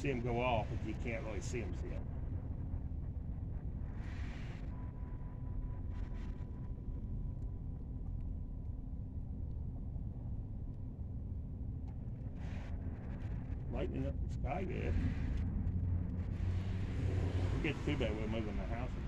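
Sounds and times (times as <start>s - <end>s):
constant low hum: 0.0s - 19.0s
low outdoor rumble: 0.0s - 19.0s.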